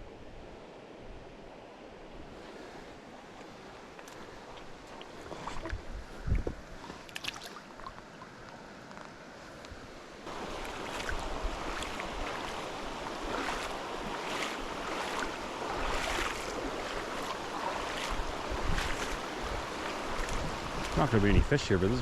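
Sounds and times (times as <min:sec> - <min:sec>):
river water rushing: 0:09.8 - 0:22.0.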